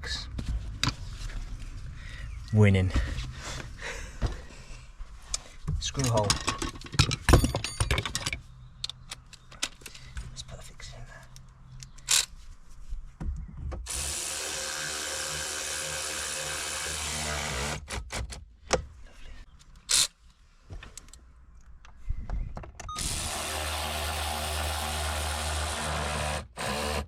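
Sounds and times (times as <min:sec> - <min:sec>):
handling clicks and knocks: 0:05.7 - 0:10.3
power drill running: 0:13.9 - 0:17.8, 0:23.0 - 0:27.0.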